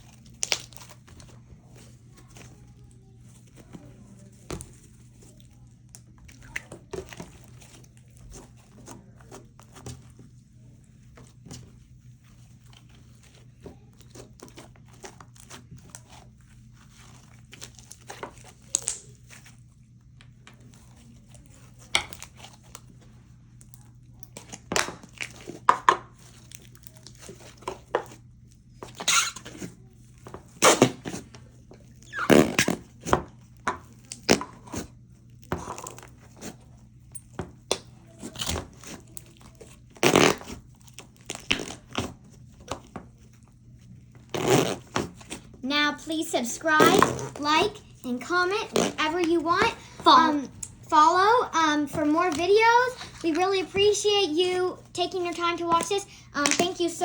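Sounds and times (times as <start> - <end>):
slime squished by hand: 0.0 - 45.6
low steady hum: 0.0 - 57.0.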